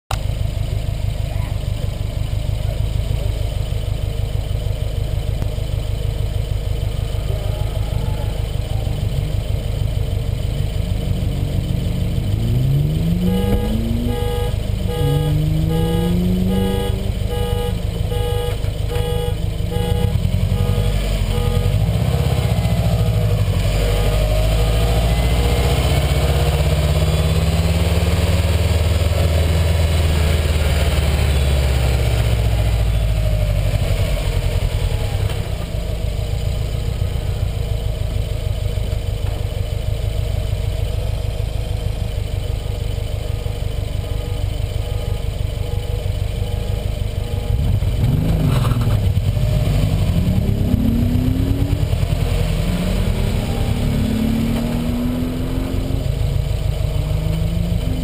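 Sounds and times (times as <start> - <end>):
car engine idling: 0.1 - 58.0
car accelerating: 6.8 - 39.3, 46.3 - 58.0
regular beeping: 10.2 - 27.3.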